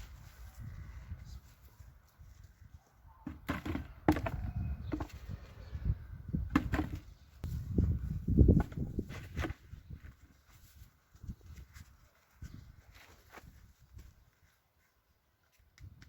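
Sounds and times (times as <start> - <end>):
thumps of digging in hard soil: 3.2 - 5.4, 6.3 - 10.6.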